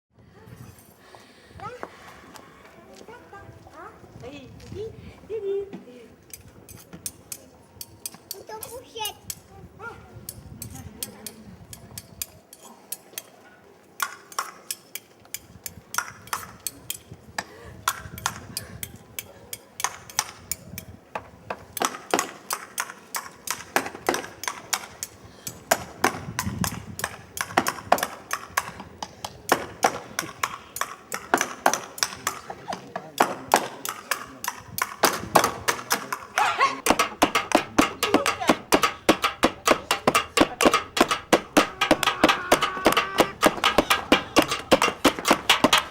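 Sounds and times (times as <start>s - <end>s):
sharp percussive taps: 36.8s - 45.9s.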